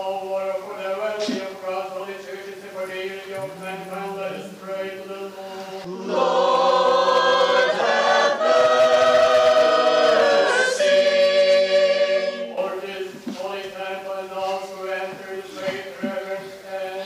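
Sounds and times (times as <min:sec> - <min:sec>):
church choir singing: 0:00.0 - 0:17.0.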